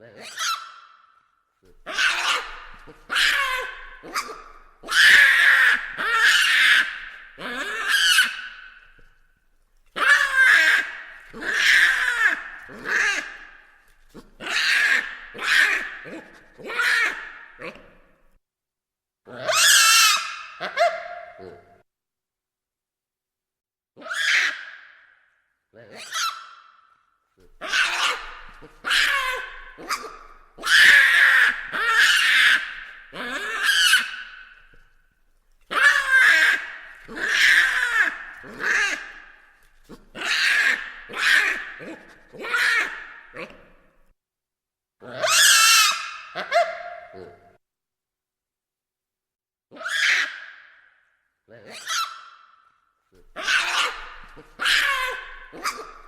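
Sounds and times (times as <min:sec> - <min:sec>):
baboons calling: 0:00.2 - 0:00.8, 0:01.7 - 0:09.0, 0:09.9 - 0:18.0, 0:19.4 - 0:21.8, 0:24.0 - 0:24.7, 0:25.9 - 0:26.7, 0:27.5 - 0:34.9, 0:35.6 - 0:43.8, 0:45.1 - 0:47.5, 0:49.7 - 0:50.6, 0:51.6 - 0:52.5, 0:53.2 - 0:56.0.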